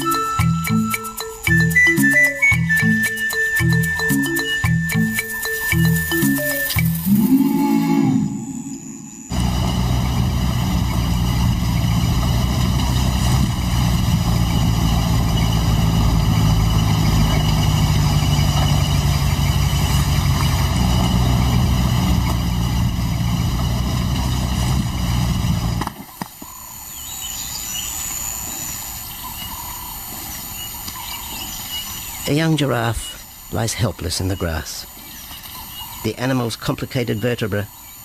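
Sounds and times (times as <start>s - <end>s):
faint high chirps: 0.0s - 9.3s
vehicle engine running: 8.8s - 26.0s.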